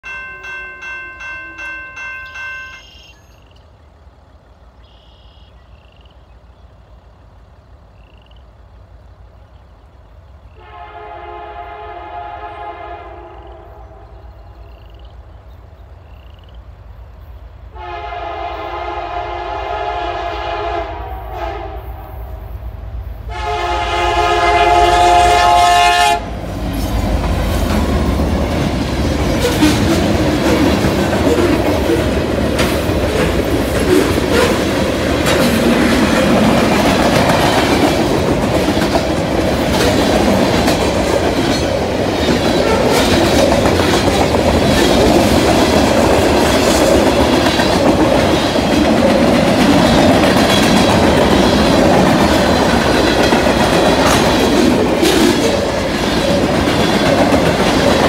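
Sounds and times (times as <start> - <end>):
crossing bell ringing: 0.0 - 3.4
train wheel noise: 0.0 - 5.4, 16.7 - 58.0
locomotive engine rumble: 0.0 - 58.0
locomotive horn blasts: 10.6 - 14.4, 17.7 - 22.5, 23.3 - 26.4.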